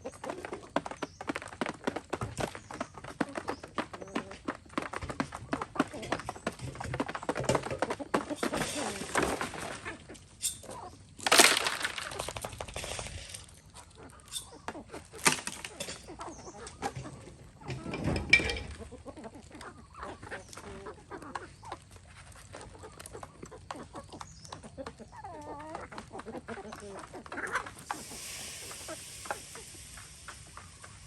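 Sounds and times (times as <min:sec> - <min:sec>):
chickens clucking: 0:00.0 - 0:31.0
loud snapping crackling noises: 0:11.1 - 0:13.5.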